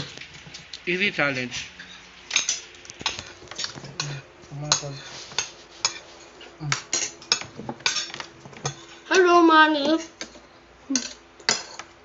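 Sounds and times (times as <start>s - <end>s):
cutlery clinking on plates: 1.8s - 9.1s, 9.9s - 11.9s.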